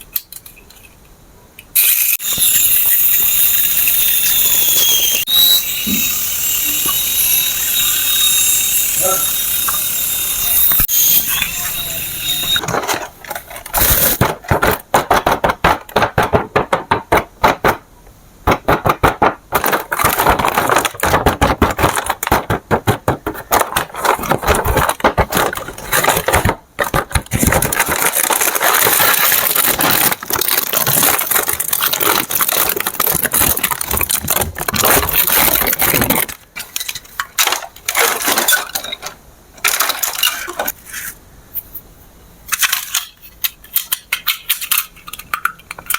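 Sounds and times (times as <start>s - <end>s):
plastic crackling and clattering: 18.6s - 40.8s.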